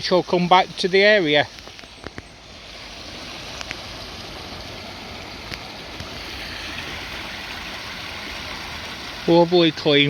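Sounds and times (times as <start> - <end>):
brook water running over stones: 0.0 - 10.0
faint clicks: 1.5 - 2.3, 3.5 - 3.8.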